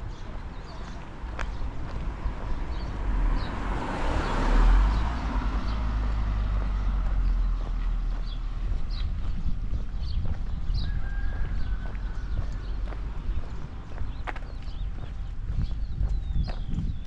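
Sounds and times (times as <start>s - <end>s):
wind rumble on microphone: 0.0s - 17.0s
car passing by: 1.5s - 9.0s.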